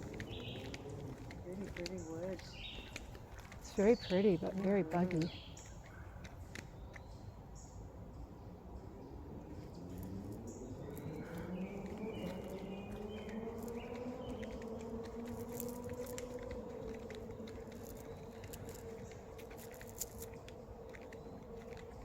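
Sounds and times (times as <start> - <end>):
insect buzzing: 9.7 - 22.0.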